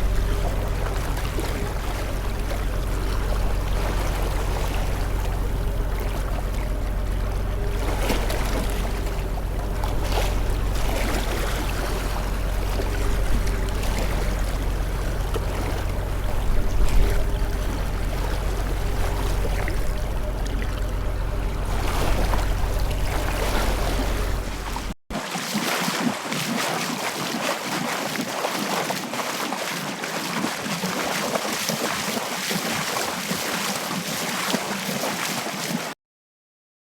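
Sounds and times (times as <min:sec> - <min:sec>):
constant low hum: 0:00.0 - 0:25.0
water-like noise: 0:00.0 - 0:36.0.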